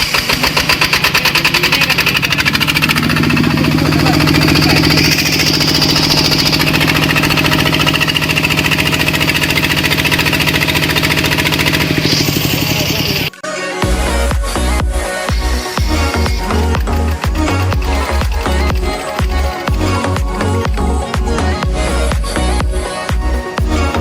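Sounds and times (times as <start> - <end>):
diesel engine knocking: 0.0 - 13.3.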